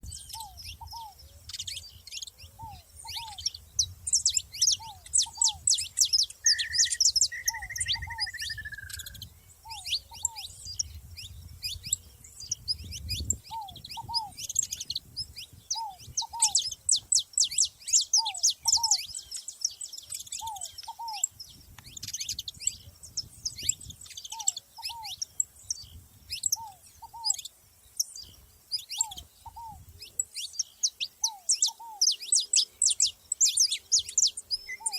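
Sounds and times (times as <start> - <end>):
finches chirping and twittering: 0.0 - 34.9
slurred whistle: 6.4 - 9.0.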